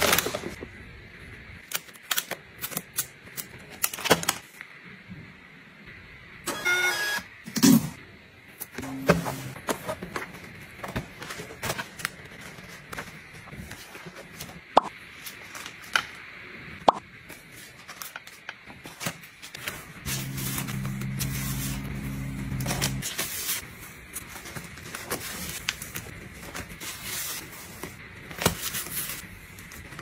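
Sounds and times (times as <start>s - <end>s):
steady low hum: 20.0s - 23.1s.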